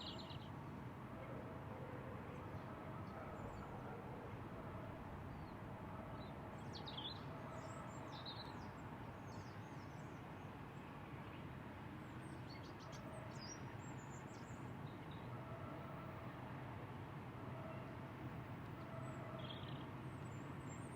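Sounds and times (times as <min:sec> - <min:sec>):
songbirds chirping: 0:18.6 - 0:20.9.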